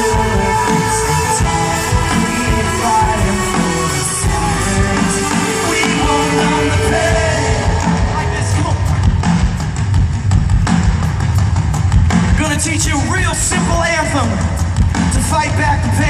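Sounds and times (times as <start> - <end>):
person singing: 0.0 - 9.0
live rock band playing: 0.0 - 16.0.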